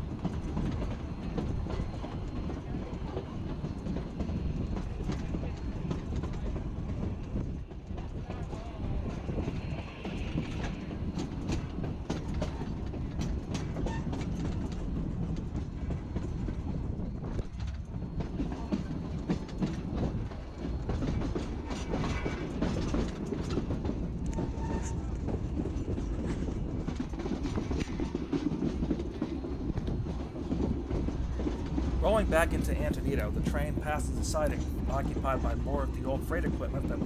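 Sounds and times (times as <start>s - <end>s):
train cars rumbling: 29.4s - 37.0s.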